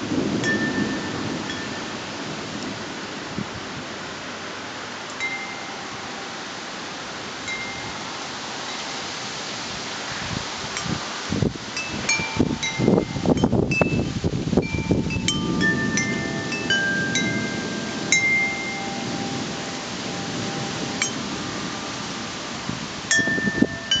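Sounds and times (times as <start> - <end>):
rush of wind: 0.0 - 24.0
wind chimes ringing: 0.3 - 2.0, 5.1 - 6.5, 7.4 - 9.1, 11.8 - 24.0.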